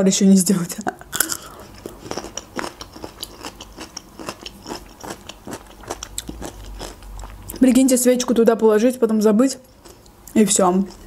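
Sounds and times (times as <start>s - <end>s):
crunchy chewing of gherkin: 1.1s - 7.6s.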